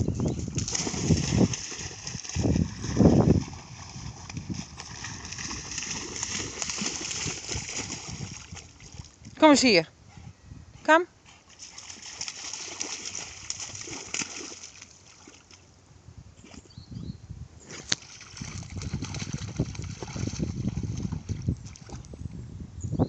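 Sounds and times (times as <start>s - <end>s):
water splashing and sloshing: 0.5s - 9.4s, 11.5s - 15.7s, 17.8s - 22.1s.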